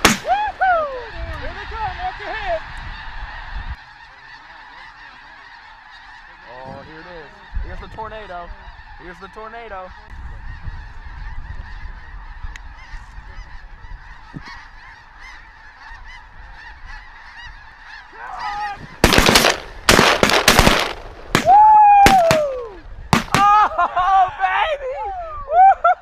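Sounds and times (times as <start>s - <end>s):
shotgun blasts: 0.0s - 0.3s, 19.0s - 22.5s, 23.1s - 23.4s
snow geese flock calling: 0.0s - 21.1s
single goose honks: 10.0s - 21.0s.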